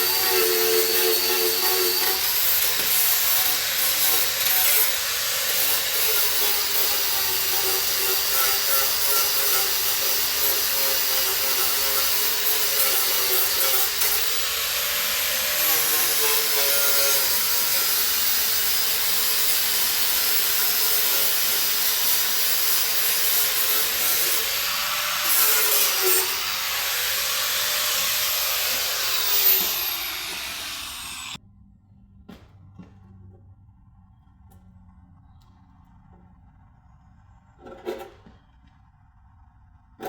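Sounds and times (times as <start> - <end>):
angle grinder cutting steel: 0.0 - 31.4.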